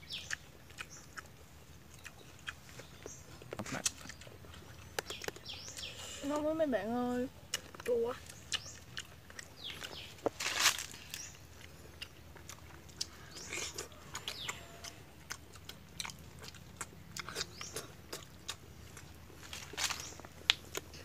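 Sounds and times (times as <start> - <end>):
wet chewing clicks and smacks: 0.0 - 6.5, 7.3 - 21.0.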